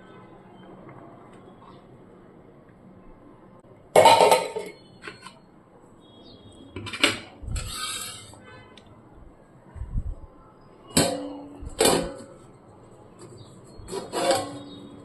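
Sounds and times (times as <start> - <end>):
dishes and utensils clattering: 4.0 - 5.4, 6.8 - 8.4, 10.9 - 12.4, 13.2 - 15.0
scraping: 7.4 - 8.5, 13.3 - 15.0.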